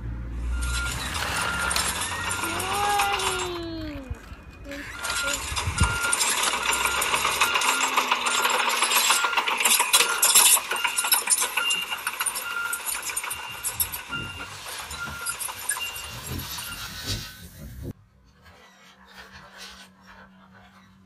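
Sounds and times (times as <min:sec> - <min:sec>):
electronic beep: 0:00.5 - 0:02.8, 0:04.7 - 0:17.2
plastic toy tracks clattering: 0:00.6 - 0:17.4.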